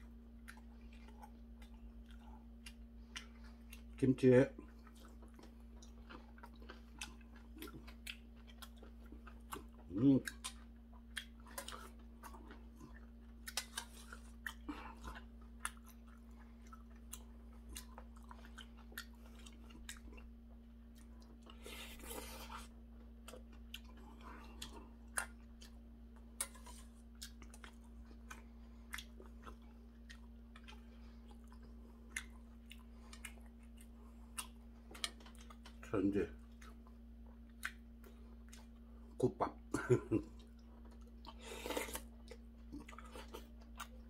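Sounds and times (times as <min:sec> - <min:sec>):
close-up chewing: 0:00.0 - 0:44.0
steady low hum: 0:00.0 - 0:44.0
mouth clicks and smacks: 0:37.5 - 0:37.8.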